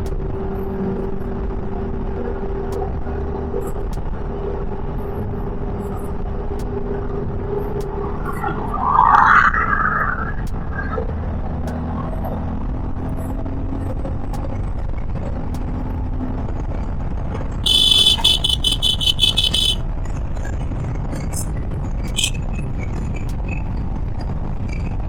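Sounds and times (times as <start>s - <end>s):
motorcycle riding: 17.6s - 19.8s, 21.8s - 23.2s
horn short high beeps: 17.7s - 19.8s, 22.2s - 22.4s.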